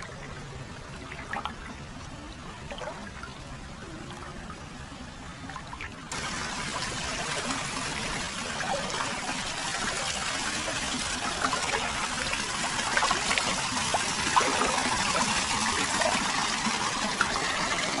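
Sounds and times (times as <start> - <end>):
water splashing into foot bath: 6.1 - 18.0.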